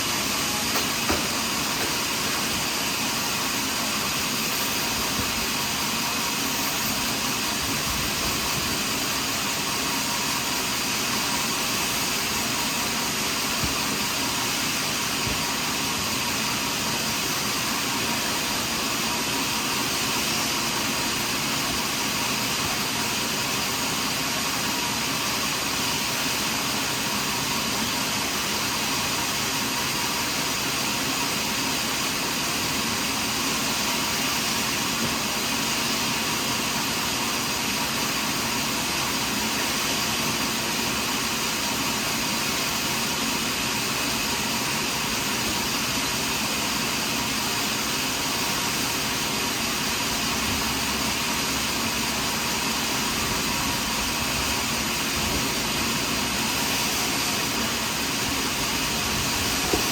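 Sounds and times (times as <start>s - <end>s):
sawmill machinery whirring: 0.0s - 59.9s.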